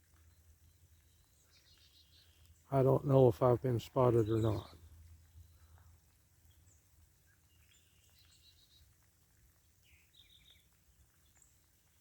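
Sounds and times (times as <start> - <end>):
light rain: 0.0 - 12.0
faint bird chirps: 0.1 - 2.7, 4.0 - 9.0, 9.8 - 12.0.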